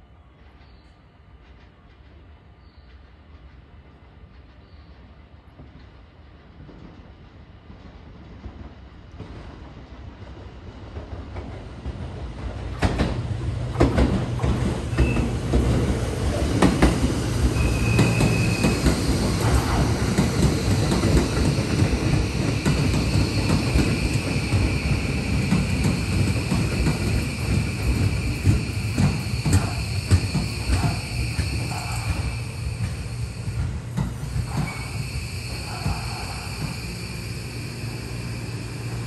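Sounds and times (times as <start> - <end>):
electric train passing: 10.6 - 39.0
wheels clacking over rail joints: 11.3 - 36.9.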